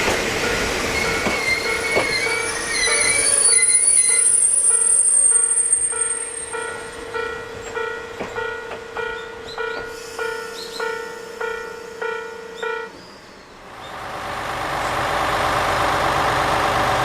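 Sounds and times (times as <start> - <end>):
train wheels and brakes squealing: 0.0 - 8.4, 9.0 - 11.6, 12.6 - 14.0
level-crossing bell ringing: 4.6 - 9.2.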